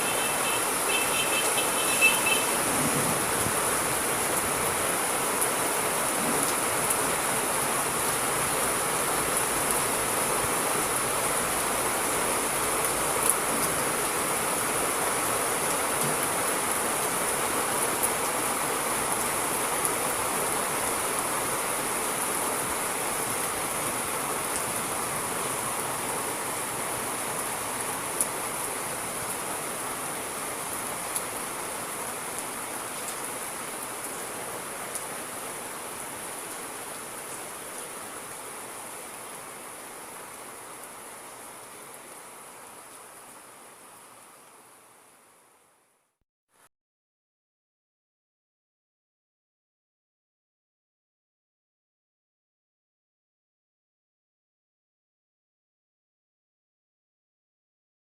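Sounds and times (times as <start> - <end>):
steady rainfall: 0.0 - 46.2.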